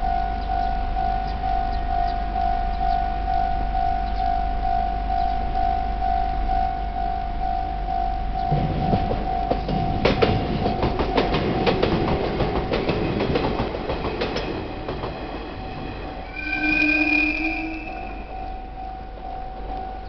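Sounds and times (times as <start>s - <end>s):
level crossing alarm ringing: 0.0s - 20.0s
train wheels clacking on rails: 8.4s - 20.0s
train horn: 16.1s - 19.2s.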